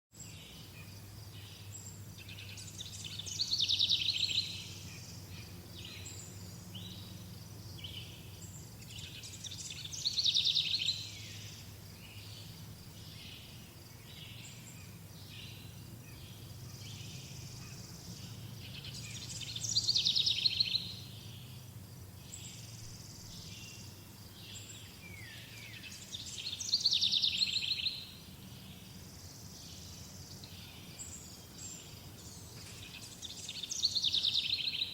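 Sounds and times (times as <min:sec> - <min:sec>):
birds chirping softly: 0:00.1 - 0:34.9
bird trilling loud song: 0:18.6 - 0:21.6.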